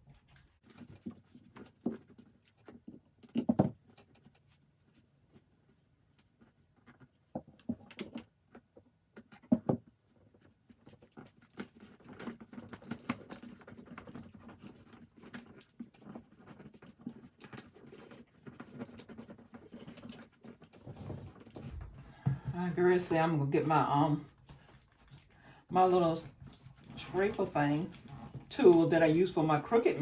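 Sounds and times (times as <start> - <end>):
sticker sheets crackling rustle: 24.3 - 30.0.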